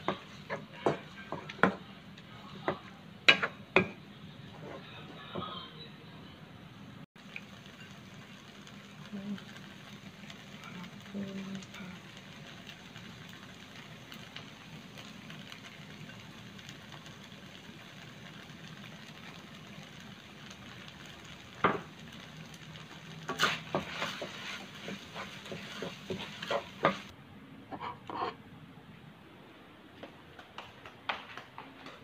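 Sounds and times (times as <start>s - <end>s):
noodles sizzling in a wok: 7.2s - 27.1s
wooden spatula scraping a pan: 23.3s - 27.1s, 27.7s - 28.4s.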